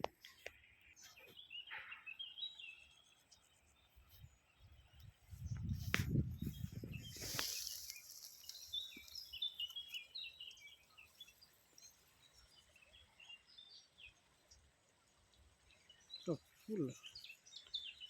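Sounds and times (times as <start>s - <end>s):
small birds chirping: 0.0s - 18.0s
brief hiss: 7.0s - 8.7s.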